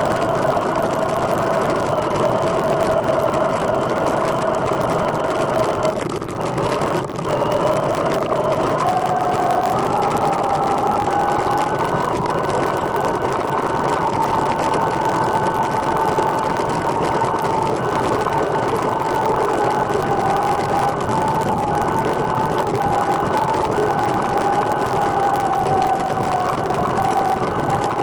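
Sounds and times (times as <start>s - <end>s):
trike whine: 0.0s - 28.0s.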